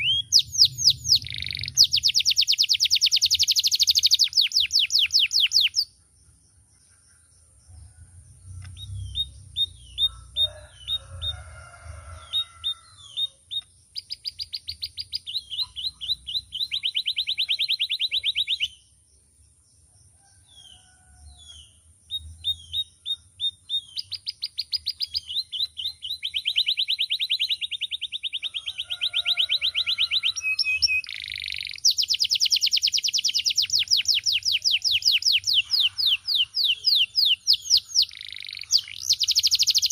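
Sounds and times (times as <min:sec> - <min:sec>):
canary singing trills: 0:00.0 - 0:07.2, 0:08.5 - 0:19.0, 0:20.2 - 0:39.9.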